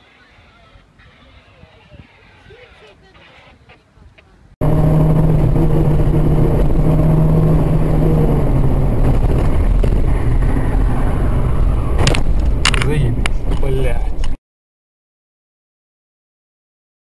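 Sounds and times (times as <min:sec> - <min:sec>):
car engine and road noise: 0:02.5 - 0:14.4
low engine hum: 0:04.6 - 0:14.4.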